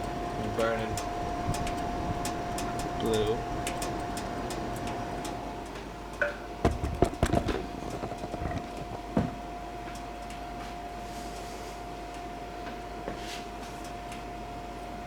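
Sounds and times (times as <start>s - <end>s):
heater whining: 0.0s - 15.0s
sharp knocks and clicks: 6.6s - 9.4s.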